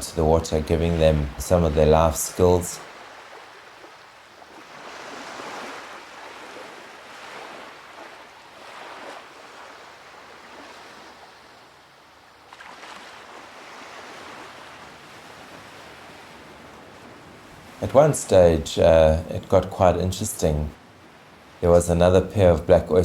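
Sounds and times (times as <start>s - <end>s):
surf washing up on beach: 0.6s - 18.6s.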